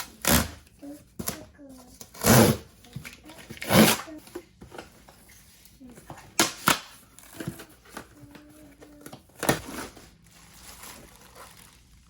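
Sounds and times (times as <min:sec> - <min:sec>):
packaging crinkling and rustling: 0:07.1 - 0:12.0.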